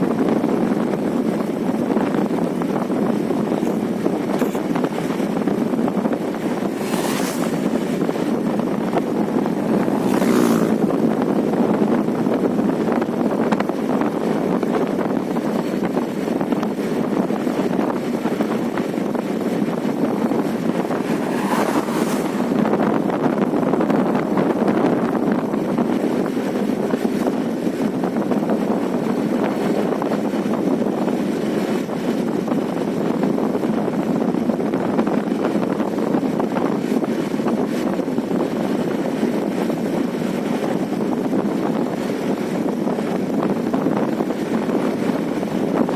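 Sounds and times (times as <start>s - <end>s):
wind and road noise: 0.0s - 45.9s
loud whooshes: 4.6s - 11.9s, 19.3s - 24.1s.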